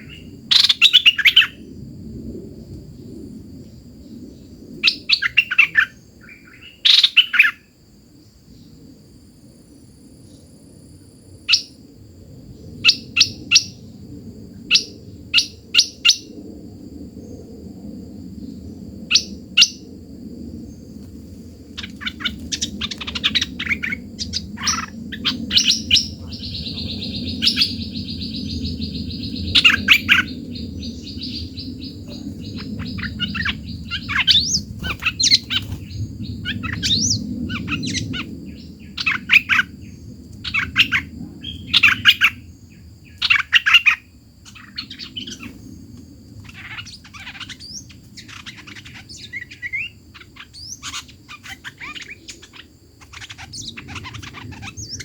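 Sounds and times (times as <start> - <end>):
songbird chirping: 0.0 - 1.6, 3.0 - 8.9, 20.6 - 55.0.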